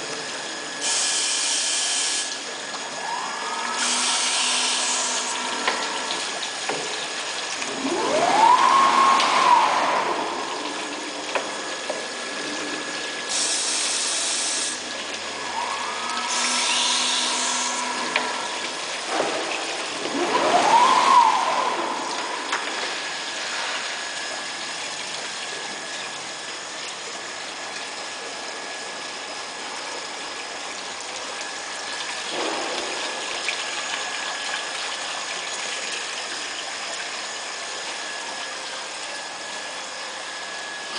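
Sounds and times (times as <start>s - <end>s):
drill motor whine: 0.0s - 30.3s.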